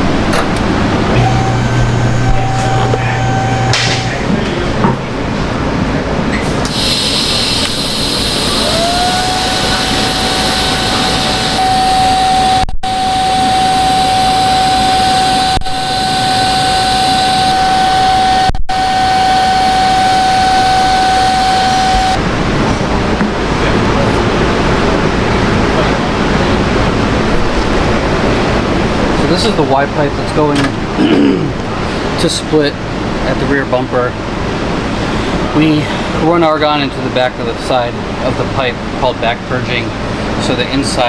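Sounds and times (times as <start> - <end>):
machine motor whining: 0.5 - 4.3, 6.7 - 22.2
loud hiss: 6.6 - 12.4.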